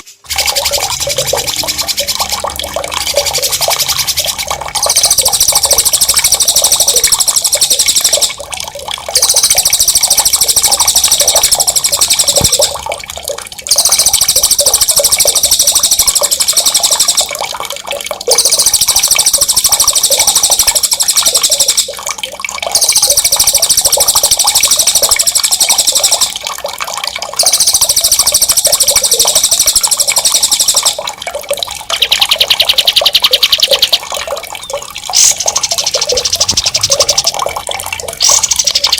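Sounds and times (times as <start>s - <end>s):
running water: 0.0s - 38.9s
songbird trilling: 3.1s - 8.4s, 9.2s - 12.8s, 13.7s - 17.3s, 18.3s - 21.9s, 22.7s - 26.3s, 27.4s - 31.0s, 31.9s - 37.6s, 38.2s - 38.9s.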